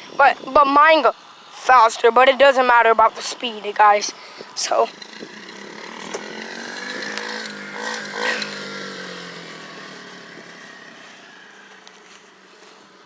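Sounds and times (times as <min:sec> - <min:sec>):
dirt bike engine revving: 0:00.1 - 0:13.0.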